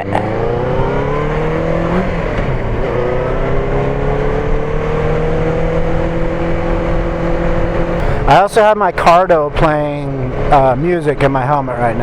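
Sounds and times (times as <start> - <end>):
motorcycle engine accelerating: 0.0 - 10.9.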